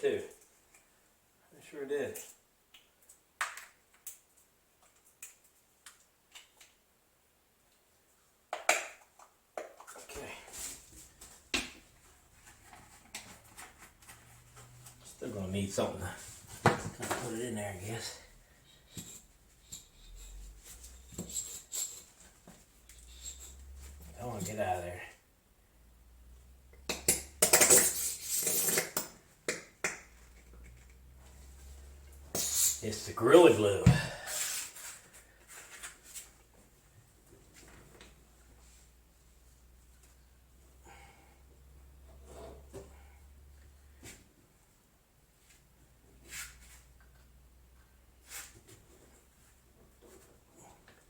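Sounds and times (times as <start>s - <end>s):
rustling: 15.8s - 24.6s.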